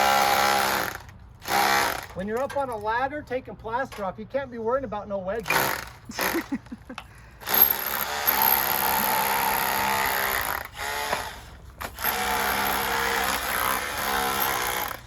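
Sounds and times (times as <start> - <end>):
power tool running: 7.4 - 15.0.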